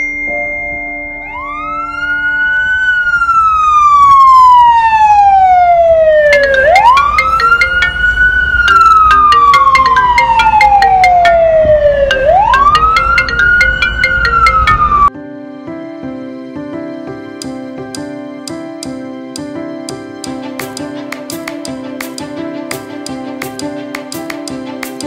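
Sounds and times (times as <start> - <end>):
emergency siren wailing: 1.2 - 15.1.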